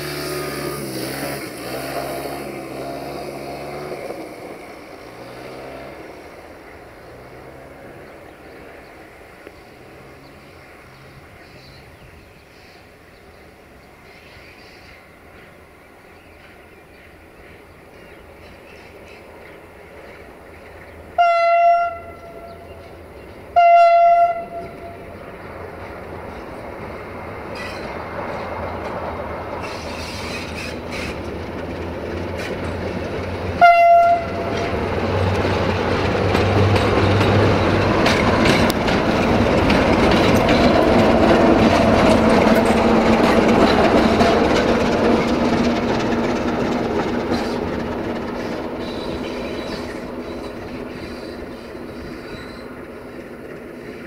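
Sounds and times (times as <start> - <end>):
train passing by: 0.0 - 54.0
train horn blast: 21.2 - 22.8, 23.5 - 25.2, 33.6 - 34.9.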